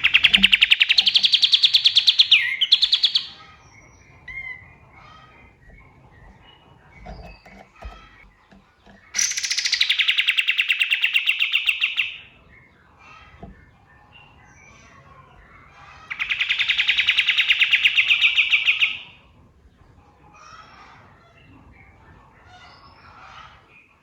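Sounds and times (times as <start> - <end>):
songbird trilling: 0.0 - 12.4, 16.0 - 19.1.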